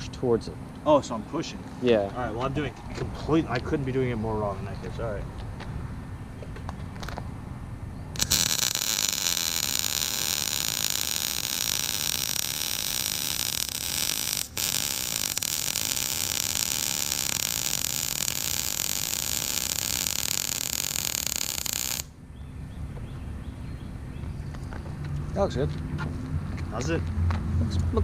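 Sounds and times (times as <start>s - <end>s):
welder arc crackling: 8.2s - 22.1s.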